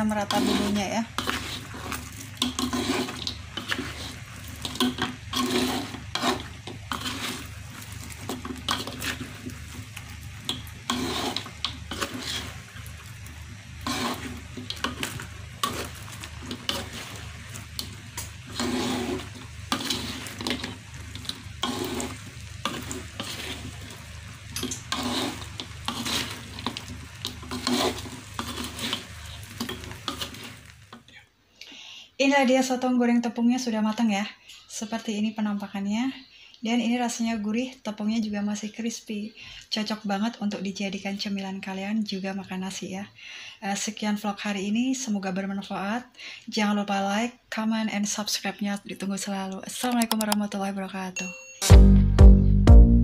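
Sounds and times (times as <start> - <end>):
spatula scraping a wok: 0.0 - 31.1
light sizzle: 0.0 - 51.0.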